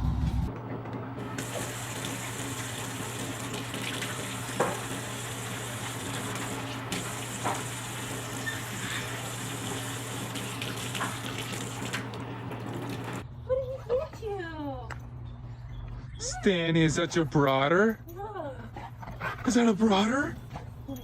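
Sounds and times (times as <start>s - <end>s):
running water: 1.2s - 13.2s.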